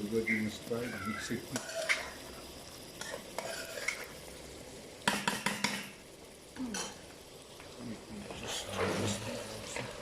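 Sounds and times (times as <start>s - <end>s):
low sizzle: 0.0s - 10.0s
spoon scraping a pan: 1.4s - 4.2s.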